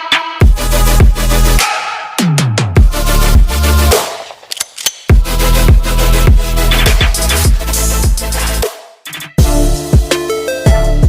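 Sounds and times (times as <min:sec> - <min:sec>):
loud dubstep music: 0:00.0 - 0:04.4, 0:05.1 - 0:11.0
heavy bass and drum hits: 0:09.4 - 0:10.1.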